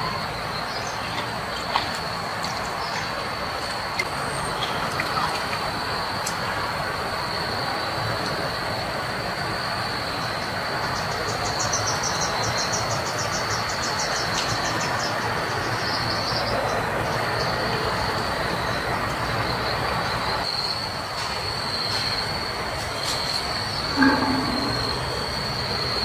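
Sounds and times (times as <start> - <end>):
flowing water rushing: 0.0 - 11.5, 23.5 - 26.0
high-pitched insect drone: 23.2 - 26.0.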